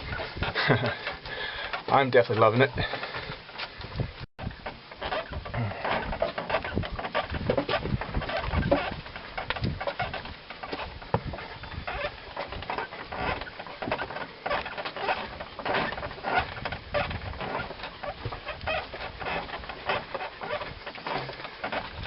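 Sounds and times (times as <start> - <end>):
footsteps on forest trail: 0.0 - 4.2
canoe creaking and knocking: 0.0 - 22.0.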